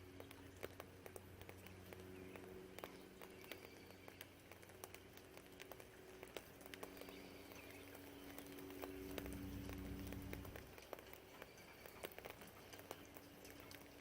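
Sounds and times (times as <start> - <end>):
raindrops dripping: 0.0 - 14.0
distant vehicle passing: 4.4 - 11.2.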